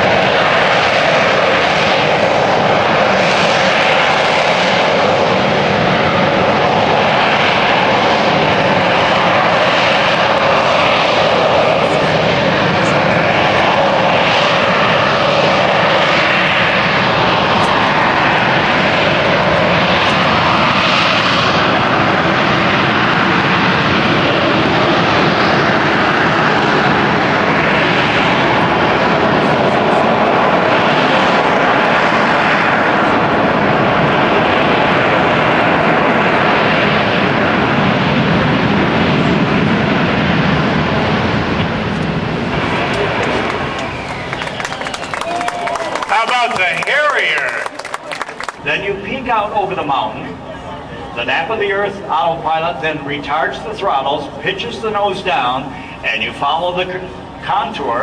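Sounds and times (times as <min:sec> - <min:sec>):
aircraft engines running: 0:00.0 - 0:58.0.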